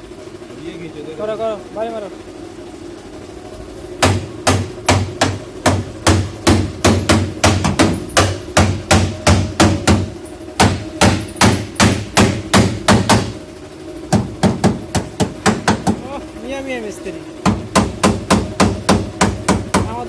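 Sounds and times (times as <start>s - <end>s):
hammer on sheet metal: 4.0s - 13.4s, 14.1s - 16.0s, 17.4s - 20.0s.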